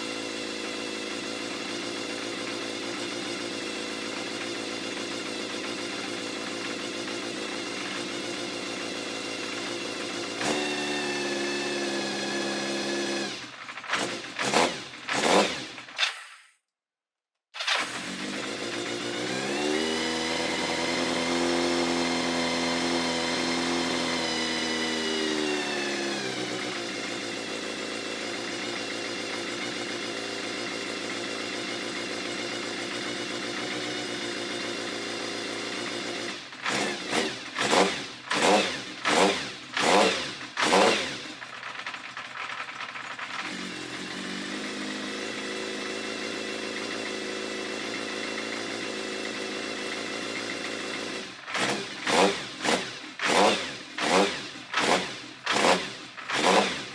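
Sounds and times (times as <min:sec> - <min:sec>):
motorcycle engine idling: 0:00.0 - 0:11.2, 0:17.7 - 0:19.4, 0:26.5 - 0:56.9.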